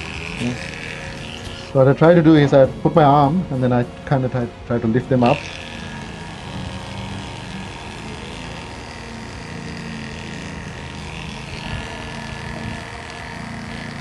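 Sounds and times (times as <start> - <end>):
electric clippers humming: 0.0 - 14.0.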